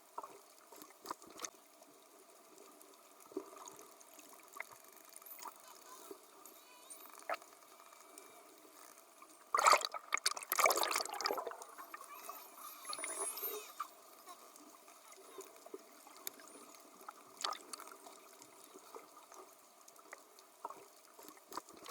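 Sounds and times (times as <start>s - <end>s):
water splashing around dolphins: 9.5s - 21.9s.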